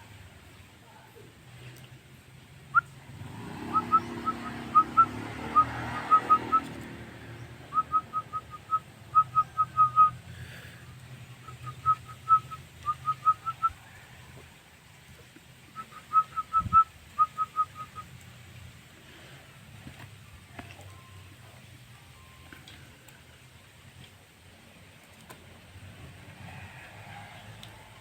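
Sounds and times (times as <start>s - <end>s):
myna whistled notes: 3.7s - 6.8s, 7.7s - 10.2s, 11.4s - 13.8s, 15.8s - 18.2s.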